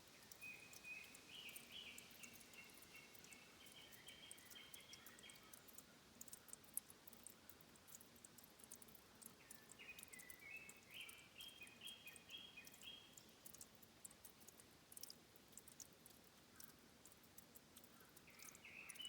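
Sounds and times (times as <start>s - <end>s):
faint high ticks: 0.0s - 19.0s
bird singing: 0.1s - 5.8s, 9.4s - 13.6s, 18.2s - 19.0s.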